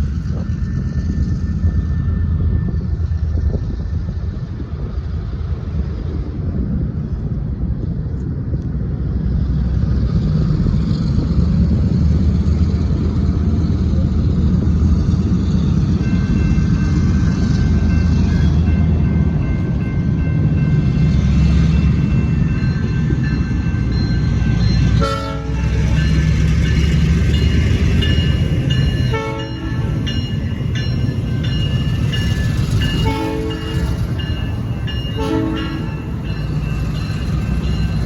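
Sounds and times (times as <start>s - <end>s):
diesel locomotive engine rumble: 0.0s - 38.0s.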